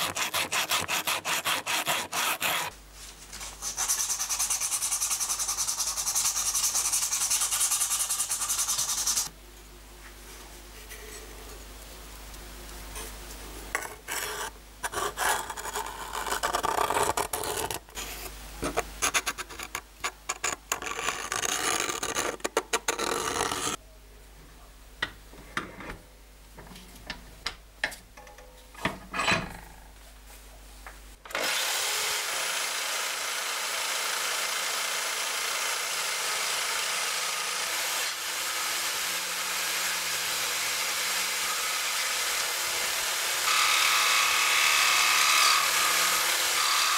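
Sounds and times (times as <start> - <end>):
scratchy rubbing: 0.0 - 9.3, 13.8 - 18.4, 19.0 - 23.8
jigsaw cutting wood: 31.3 - 46.9.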